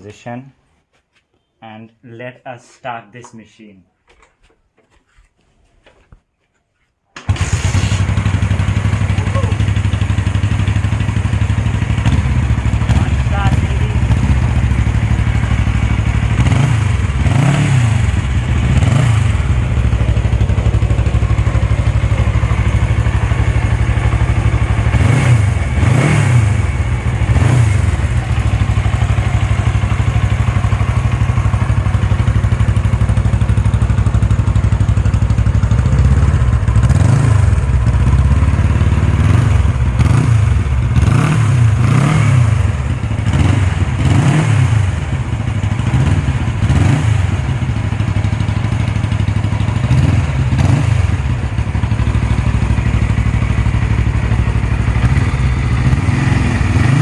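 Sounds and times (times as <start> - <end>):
engine throttle blips: 7.3 - 45.5
motorcycle engine idling: 7.4 - 57.0.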